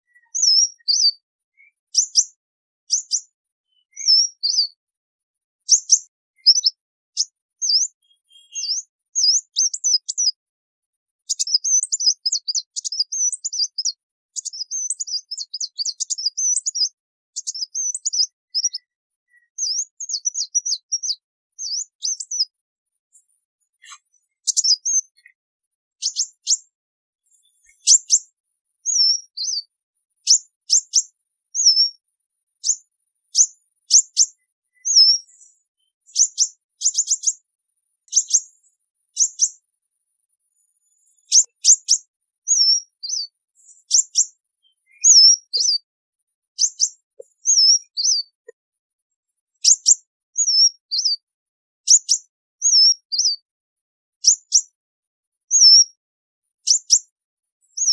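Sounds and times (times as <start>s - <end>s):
birds chirping and twittering: 0.0s - 53.5s, 54.2s - 57.9s
sharp down-slurred bird notes: 7.6s - 10.4s.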